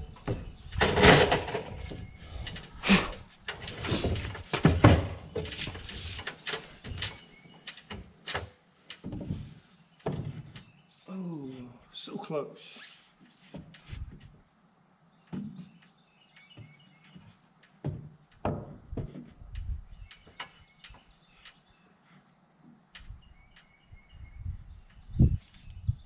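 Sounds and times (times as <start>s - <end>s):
light knocks and clunks: 0.1s - 2.8s, 3.5s - 10.7s, 15.2s - 21.6s
wind rumble on microphone: 18.6s - 20.2s, 23.0s - 26.0s
faint bird chirps: 23.0s - 26.0s.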